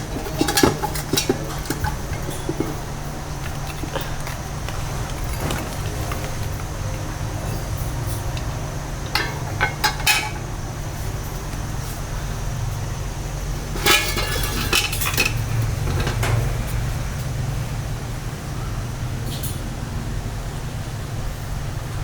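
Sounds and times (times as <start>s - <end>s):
metal and crockery clinking: 0.0s - 12.9s, 13.5s - 17.0s.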